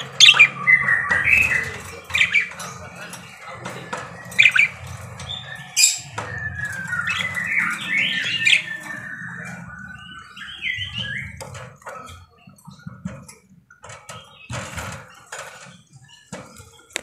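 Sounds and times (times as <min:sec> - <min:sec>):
budgerigar chattering: 0:00.0 - 0:02.6.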